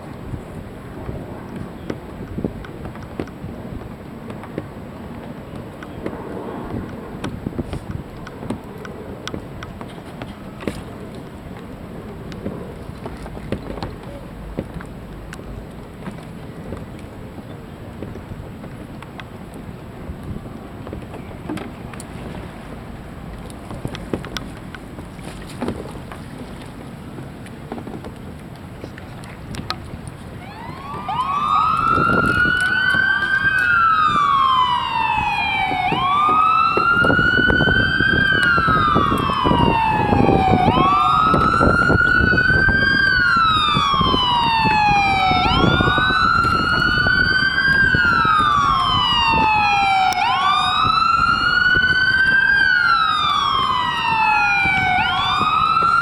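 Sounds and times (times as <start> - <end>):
water noise: 0.0 - 56.0
wind: 0.0 - 56.0
fire sirens wailing: 30.4 - 56.0.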